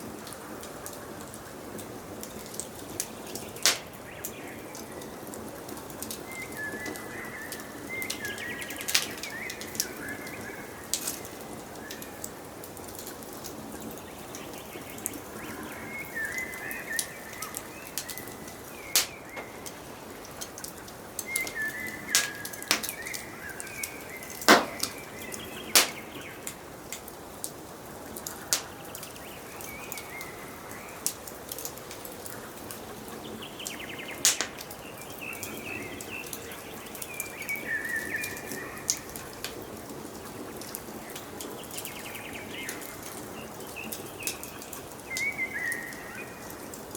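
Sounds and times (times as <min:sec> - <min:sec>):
wood fire crackling: 0:00.0 - 0:46.9
forest birds singing: 0:02.2 - 0:12.4, 0:13.2 - 0:26.9, 0:27.9 - 0:46.8
sharp pops from fire: 0:03.0 - 0:04.1, 0:08.0 - 0:10.0, 0:17.0 - 0:19.8, 0:20.4 - 0:27.0, 0:28.5 - 0:29.0, 0:34.2 - 0:34.7.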